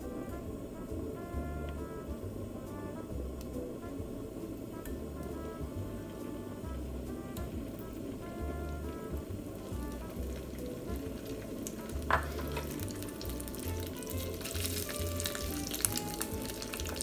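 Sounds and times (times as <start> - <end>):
tofu sizzling in hot oil: 7.0 - 17.0.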